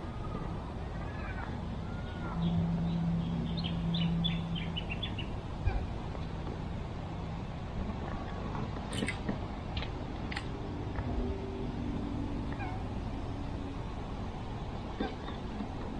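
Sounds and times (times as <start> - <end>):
low hum: 0.0 - 15.9
birds chirping: 1.0 - 6.0.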